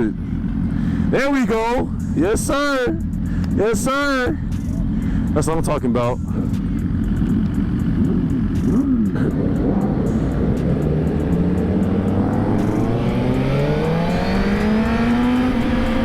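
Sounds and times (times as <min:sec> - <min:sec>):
motorcycle engine accelerating: 0:06.3 - 0:16.0.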